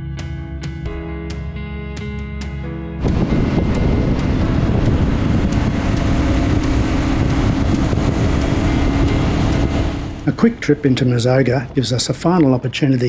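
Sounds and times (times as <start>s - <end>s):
motorcycle engine running: 3.0s - 12.2s
wind rushing over microphone: 3.0s - 12.8s.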